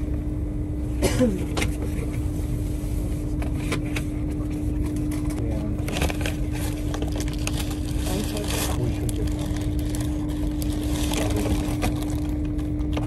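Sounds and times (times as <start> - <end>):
paper crackling and rustling: 5.6 - 13.0.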